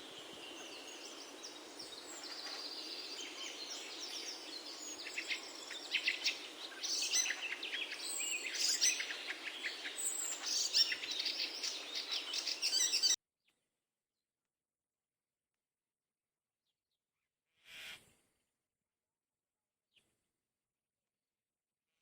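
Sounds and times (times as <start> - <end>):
faint steady hiss: 0.0 - 13.2
small birds chirping: 0.0 - 13.2.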